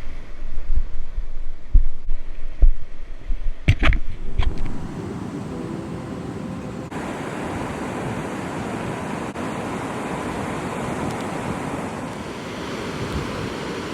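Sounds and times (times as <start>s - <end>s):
wind on microphone: 0.0s - 13.9s
ocean surf breaking: 4.3s - 13.9s.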